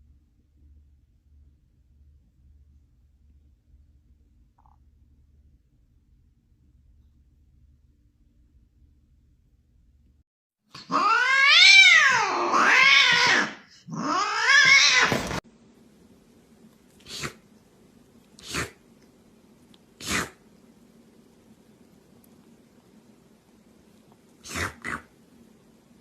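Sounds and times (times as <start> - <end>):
cat yowling: 10.8 - 15.4.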